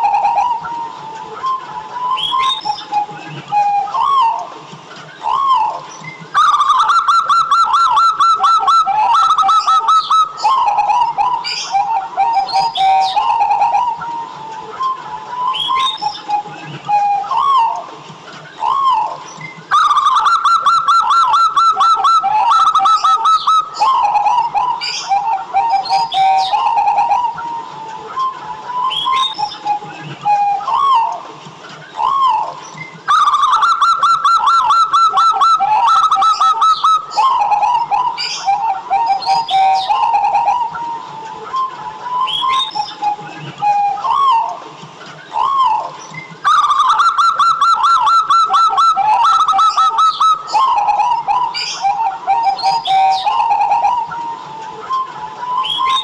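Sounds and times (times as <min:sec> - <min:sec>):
dove cooing song: 0:00.0 - 0:56.0.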